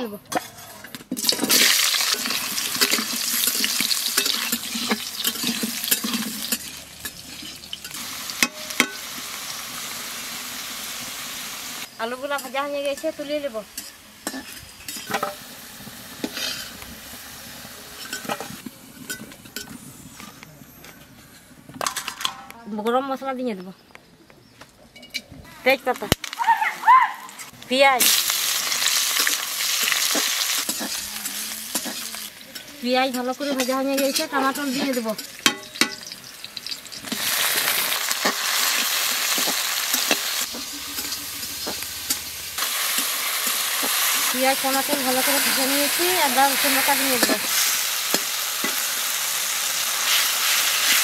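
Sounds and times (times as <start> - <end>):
metal spatula clinking: 0.3 - 9.0, 18.0 - 19.8, 29.2 - 37.2, 38.1 - 42.4
potatoes sizzling in hot oil: 1.2 - 18.6, 27.5 - 51.0.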